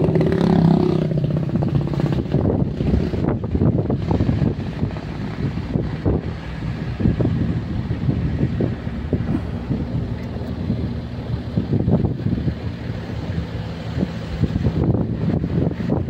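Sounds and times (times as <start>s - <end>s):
vehicle engine droning: 0.0s - 16.0s
wind buffeting microphone: 0.0s - 16.0s.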